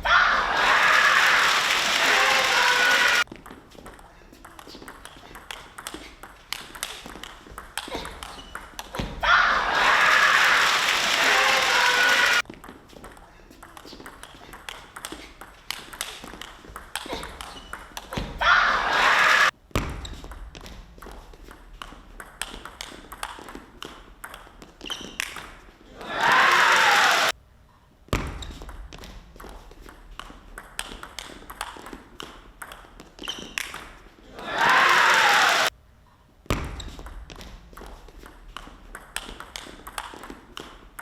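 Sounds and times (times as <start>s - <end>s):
crowd noise: 0.0s - 3.2s, 9.2s - 12.4s, 18.4s - 19.5s, 25.8s - 27.3s, 34.2s - 35.7s
ping pong ball clicking: 3.3s - 9.0s, 12.4s - 18.1s, 21.0s - 25.5s, 29.4s - 33.8s, 37.8s - 41.0s.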